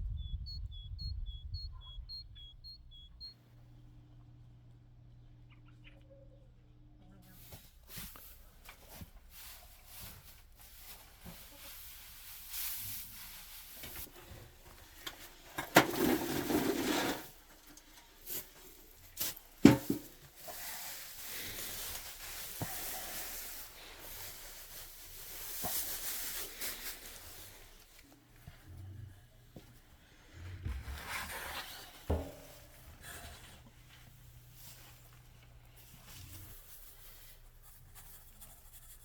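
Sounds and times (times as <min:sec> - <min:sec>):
rustling and clattering objects: 0:07.3 - 0:28.6, 0:29.5 - 0:39.0.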